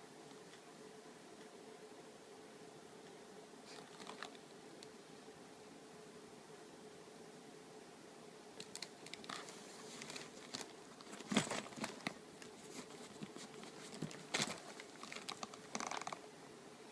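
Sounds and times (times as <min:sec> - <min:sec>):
crinkling: 0:03.7 - 0:04.9, 0:08.6 - 0:16.2
cat claws scraping suitcase: 0:09.2 - 0:16.2.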